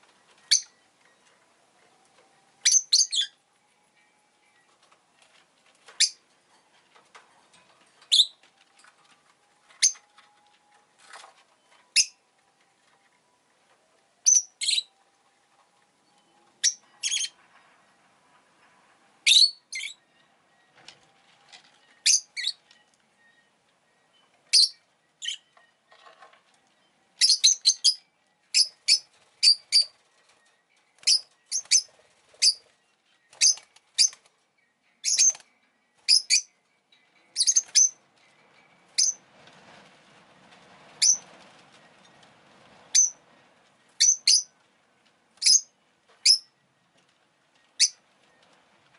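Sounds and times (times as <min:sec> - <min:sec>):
lovebird chirping: 0:00.3 - 0:01.0, 0:02.6 - 0:03.4, 0:06.0 - 0:06.2, 0:08.1 - 0:08.4, 0:09.7 - 0:10.1, 0:11.9 - 0:12.2, 0:14.2 - 0:15.0, 0:16.1 - 0:17.4, 0:19.2 - 0:20.7, 0:21.8 - 0:26.1, 0:26.8 - 0:30.0, 0:31.0 - 0:35.4, 0:36.0 - 0:36.6, 0:37.2 - 0:38.0, 0:38.6 - 0:39.2, 0:41.0 - 0:41.2, 0:42.9 - 0:43.2, 0:44.0 - 0:44.6, 0:45.4 - 0:46.6, 0:47.7 - 0:48.0.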